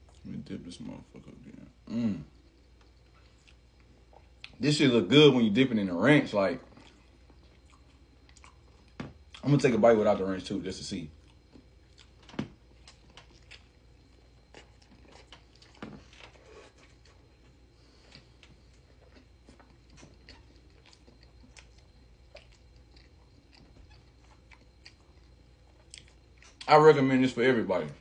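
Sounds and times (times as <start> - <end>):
chewing food: 0.0 - 0.4, 2.4 - 4.6, 6.6 - 9.5, 11.1 - 26.7
low steady hum: 0.0 - 28.0.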